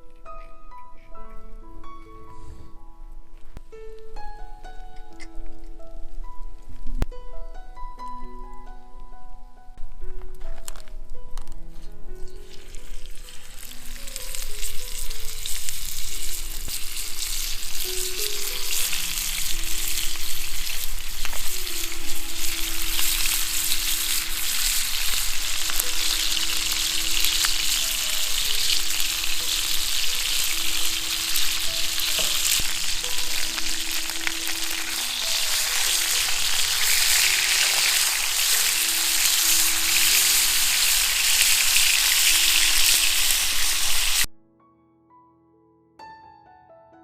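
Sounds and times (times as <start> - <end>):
slow background music: 0.0 - 47.0
food sizzling over campfire: 12.2 - 44.3.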